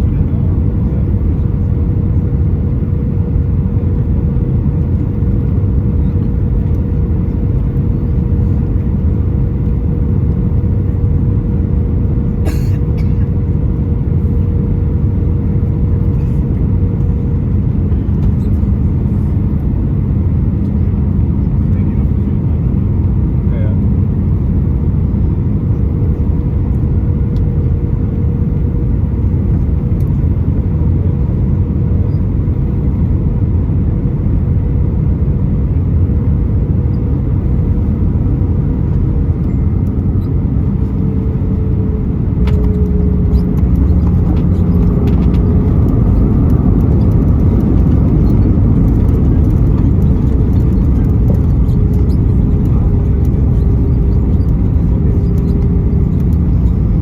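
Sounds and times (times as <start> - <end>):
airplane cabin roar: 0.0 - 57.0
jet engine tone: 36.8 - 57.0.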